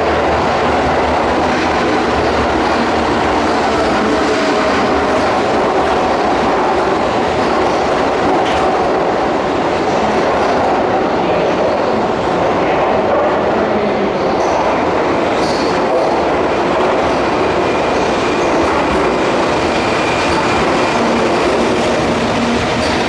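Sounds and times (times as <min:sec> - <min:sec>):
electric train rumbling: 0:00.0 - 0:23.0.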